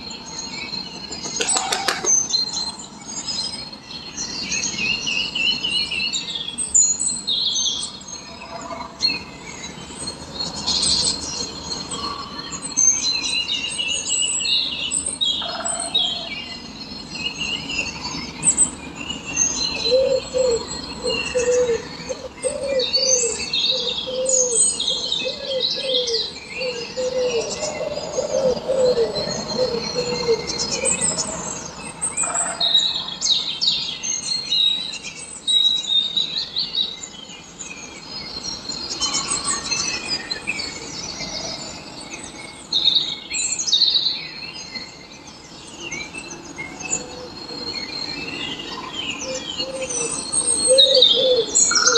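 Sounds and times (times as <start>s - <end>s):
small birds chirping: 0.0s - 32.1s
low repeated bird call: 0.2s - 3.0s, 17.6s - 33.2s, 46.4s - 51.9s.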